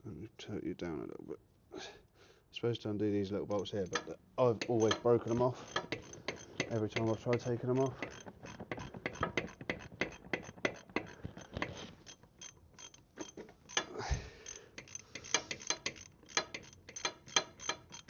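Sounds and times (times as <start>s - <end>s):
ratchet wrench clicking: 3.6s - 18.0s.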